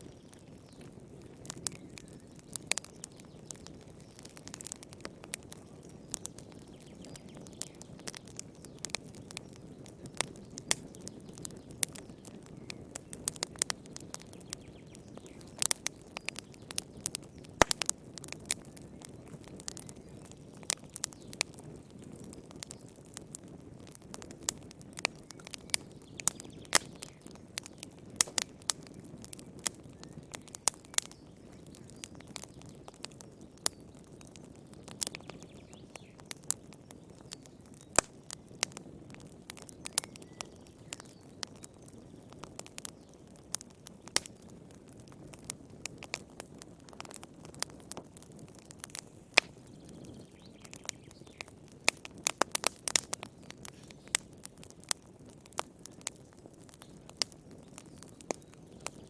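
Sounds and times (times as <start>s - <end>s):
campfire crackling and popping: 0.0s - 59.0s
low rumble of flame: 0.0s - 59.0s.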